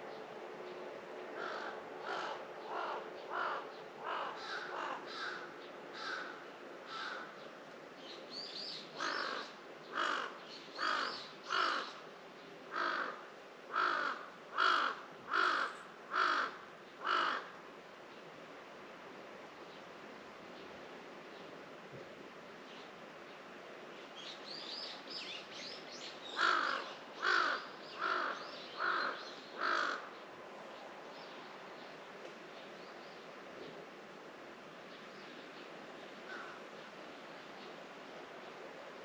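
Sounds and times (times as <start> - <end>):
crow cawing: 1.4 - 7.4, 9.0 - 12.0, 12.7 - 17.6, 26.3 - 30.1, 36.3 - 36.6.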